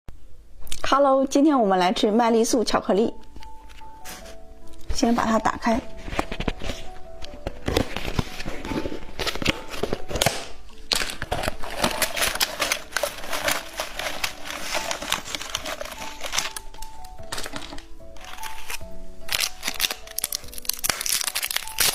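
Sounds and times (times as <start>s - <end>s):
plastic packaging crinkling: 5.8s - 21.9s.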